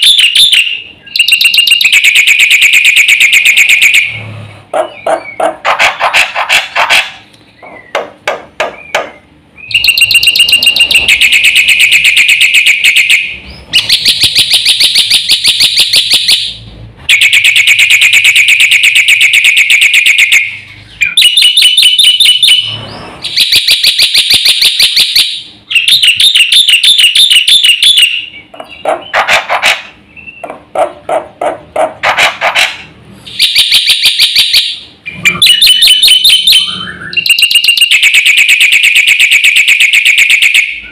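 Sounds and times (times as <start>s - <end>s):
bird singing shrill notes: 8.8s - 11.4s, 35.1s - 37.6s.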